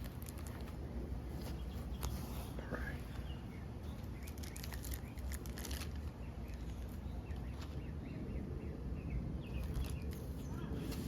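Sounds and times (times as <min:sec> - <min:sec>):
packaging rustling and crinkling: 0:00.0 - 0:00.8, 0:04.2 - 0:06.9.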